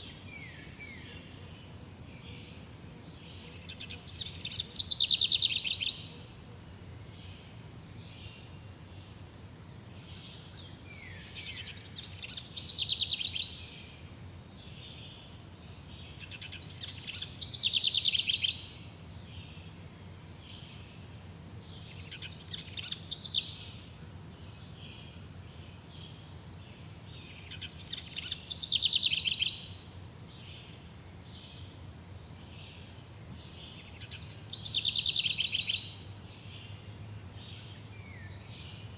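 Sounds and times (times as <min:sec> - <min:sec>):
songbird singing with trill: 0:00.0 - 0:38.9
soft bird chirps: 0:15.7 - 0:30.7.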